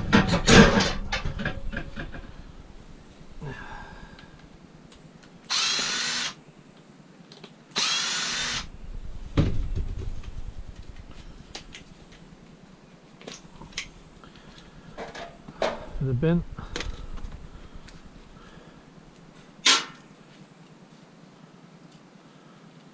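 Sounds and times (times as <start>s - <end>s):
power drill whining: 5.5s - 6.4s, 7.8s - 8.7s.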